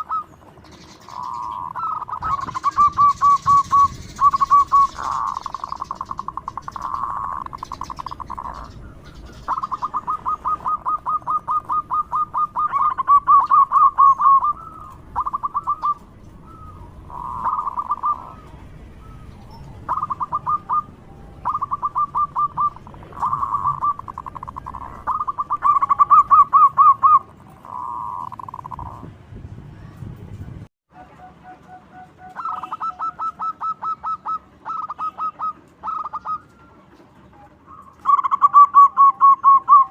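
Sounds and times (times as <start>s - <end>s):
dove cooing trills: 0.0s - 29.1s, 31.0s - 39.9s.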